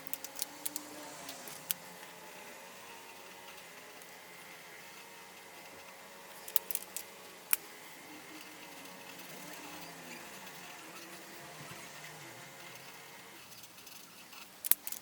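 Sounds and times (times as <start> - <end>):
small clicks: 0.0 - 2.1, 6.4 - 7.6, 13.6 - 15.0.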